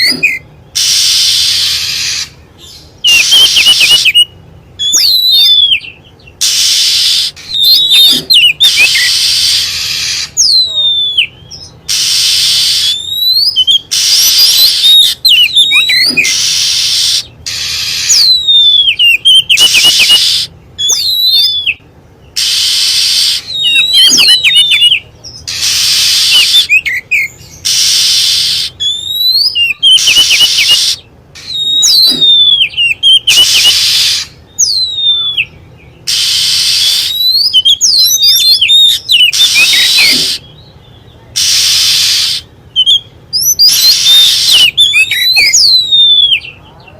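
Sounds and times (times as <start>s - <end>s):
bird singing whistled notes: 0.0s - 46.9s
bird harsh hissing notes: 0.8s - 2.4s, 6.4s - 10.4s, 11.9s - 13.0s, 13.9s - 15.2s, 15.9s - 18.3s, 19.6s - 20.5s, 22.4s - 23.5s, 25.5s - 26.7s, 27.5s - 28.8s, 30.0s - 32.3s, 33.3s - 34.4s, 36.1s - 37.2s, 39.3s - 40.5s, 41.4s - 42.5s, 43.6s - 44.8s.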